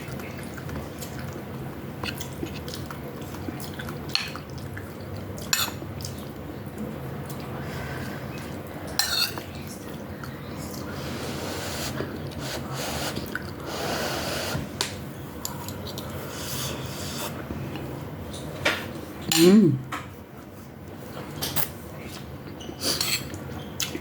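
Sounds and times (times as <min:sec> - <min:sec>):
wet chewing noises: 0:00.0 - 0:08.6.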